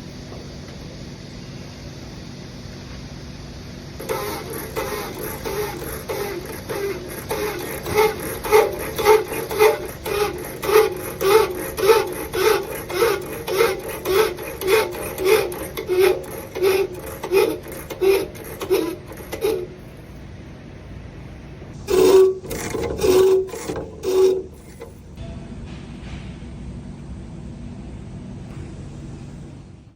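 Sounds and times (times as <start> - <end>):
rasping strokes on copper pipe: 4.0 - 19.8, 21.8 - 25.2.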